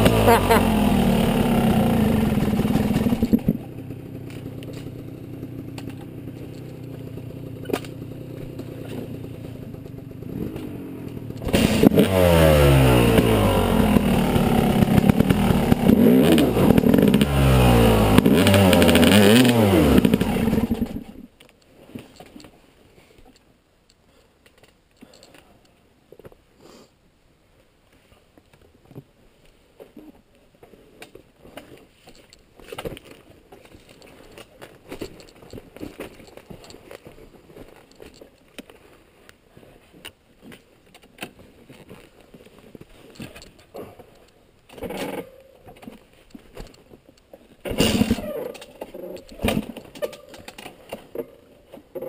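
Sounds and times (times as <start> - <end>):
dirt bike engine revving: 0.0 - 6.4, 7.1 - 21.2, 47.8 - 48.6.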